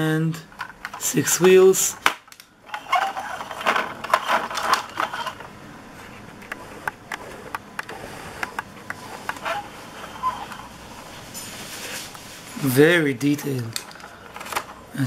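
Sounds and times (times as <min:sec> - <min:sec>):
plastic toy rattling and knocking: 0:02.0 - 0:05.4.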